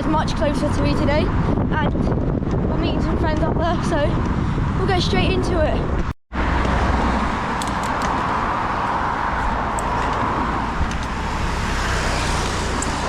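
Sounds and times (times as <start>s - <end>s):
vehicle road noise: 0.0s - 13.0s.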